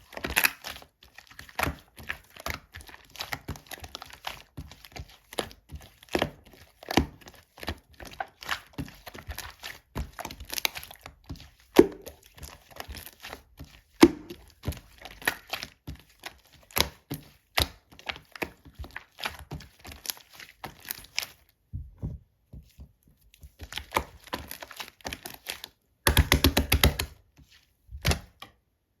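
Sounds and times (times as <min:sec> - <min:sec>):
slime squishing by hand: 0:00.0 - 0:28.8.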